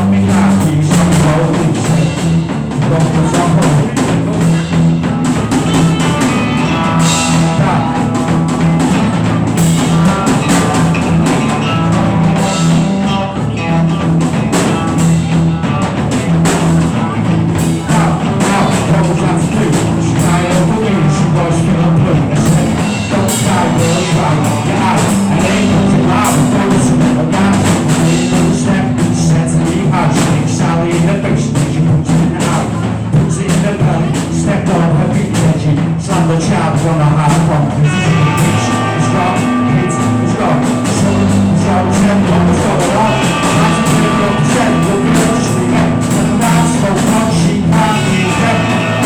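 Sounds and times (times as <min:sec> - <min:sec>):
bass guitar: 0:00.0 - 0:49.0
drum kit: 0:00.0 - 0:49.0
electric guitar: 0:00.0 - 0:49.0.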